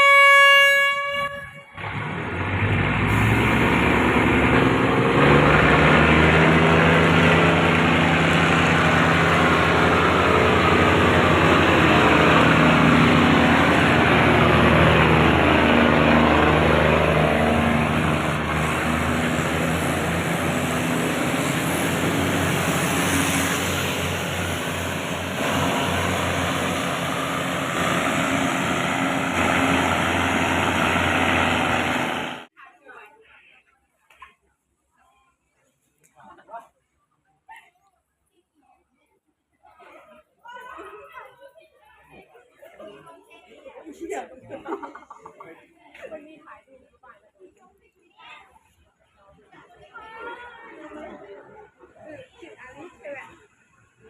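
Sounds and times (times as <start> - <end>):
train horn blast: 0.0 - 1.9
diesel train rumbling on rails: 0.0 - 32.5.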